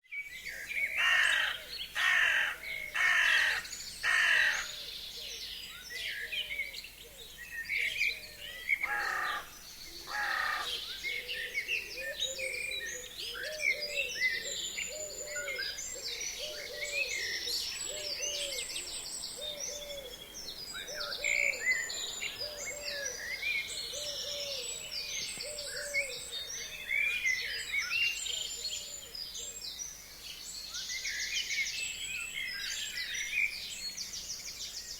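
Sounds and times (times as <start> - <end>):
songbirds chirping and trilling: 0.1 - 34.9
crow cawing: 1.0 - 4.7, 8.8 - 10.8.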